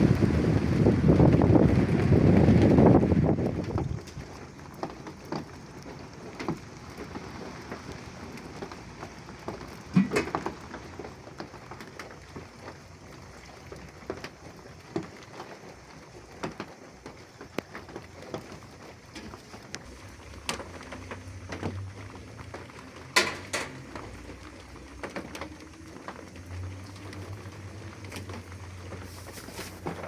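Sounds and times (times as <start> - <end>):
steady rain falling: 0.0 - 30.0
drops tapping on a surface: 10.0 - 10.5.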